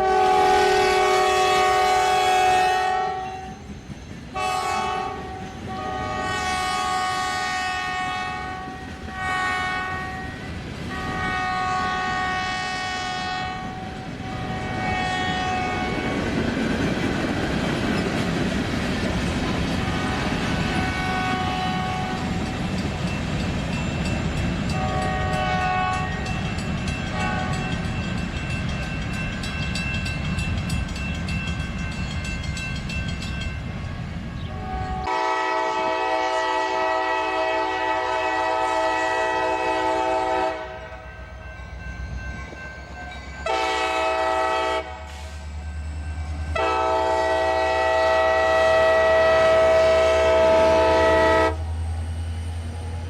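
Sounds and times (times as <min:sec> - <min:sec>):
locomotive air horn blasts: 0:00.0 - 0:03.6, 0:04.4 - 0:16.2, 0:19.8 - 0:22.4, 0:24.7 - 0:26.4, 0:27.1 - 0:27.8, 0:34.5 - 0:41.1, 0:43.4 - 0:45.4, 0:46.5 - 0:51.8
train rumbling on rails: 0:00.0 - 0:53.0
locomotive engine drone: 0:44.8 - 0:53.0.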